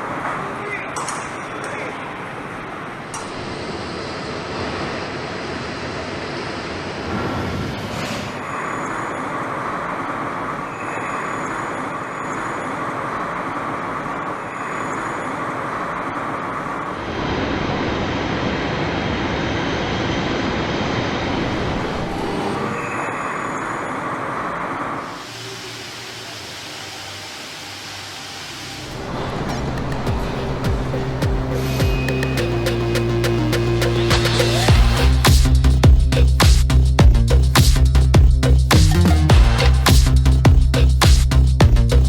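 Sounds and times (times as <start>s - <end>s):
heavy machinery running: 18.2s - 42.0s.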